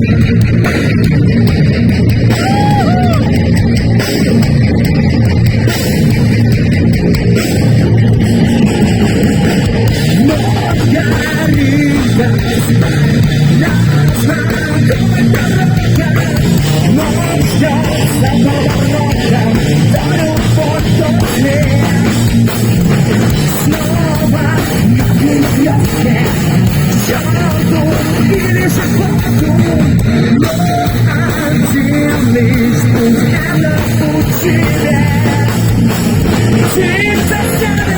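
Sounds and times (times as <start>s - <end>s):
heavy metal band playing live: 0.0s - 37.9s.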